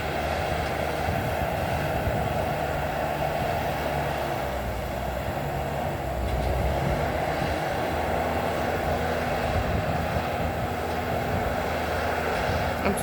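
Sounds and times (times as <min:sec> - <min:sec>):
distant bulldozer diesel engine: 0:00.0 - 0:13.0.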